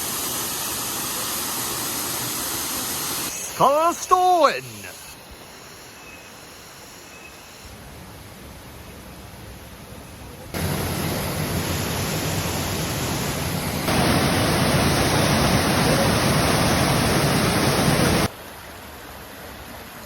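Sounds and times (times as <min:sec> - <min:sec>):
waterfall rushing: 0:00.0 - 0:05.0, 0:13.9 - 0:18.3.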